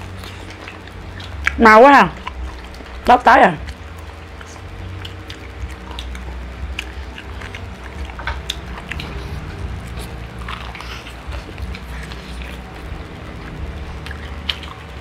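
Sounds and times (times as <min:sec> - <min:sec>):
low steady hum: 0:00.0 - 0:15.0
crunching fried chicken: 0:03.6 - 0:15.0.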